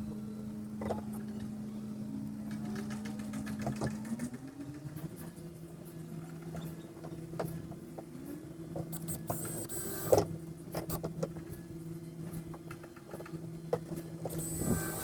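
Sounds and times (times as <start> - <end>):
small motor humming: 9.0 - 10.3, 14.2 - 15.0.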